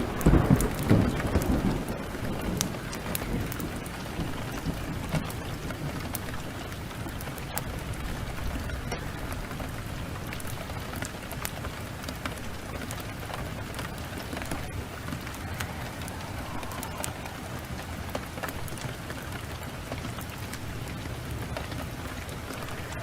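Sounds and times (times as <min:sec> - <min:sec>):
heavy rain: 0:00.0 - 0:23.0
wood fire crackling: 0:00.0 - 0:23.0
low rumble: 0:13.6 - 0:20.0.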